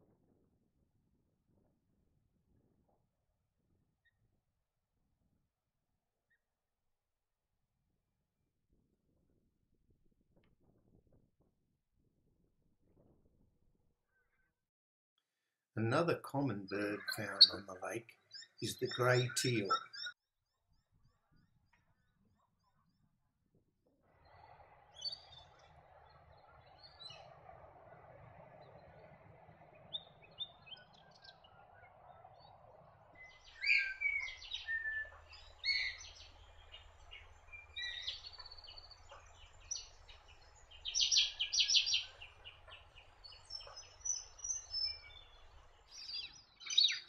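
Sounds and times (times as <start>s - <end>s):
birds chirping: 15.8s - 20.2s, 24.2s - 47.0s
outdoor background hiss: 33.2s - 46.7s.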